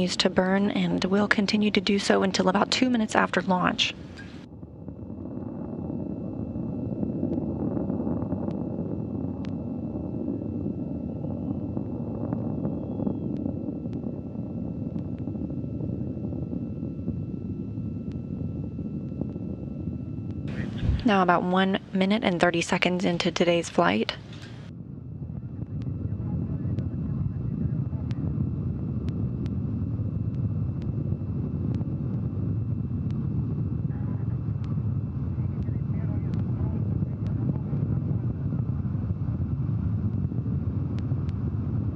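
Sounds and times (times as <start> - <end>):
faint steady high tone: 0.0 - 24.6
rocket engines rumbling: 0.0 - 41.9
faint clicks: 4.1 - 4.5, 9.4 - 9.6, 23.6 - 24.7, 25.6 - 26.0, 30.3 - 31.0, 34.6 - 36.6, 37.2 - 37.4, 40.8 - 41.4
faint sharp clicks: 35.6 - 36.5.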